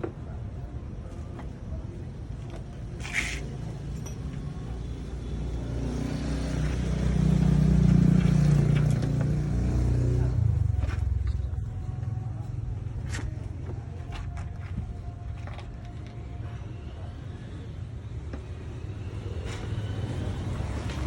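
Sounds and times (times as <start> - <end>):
vehicle engine running: 5.5 - 15.2.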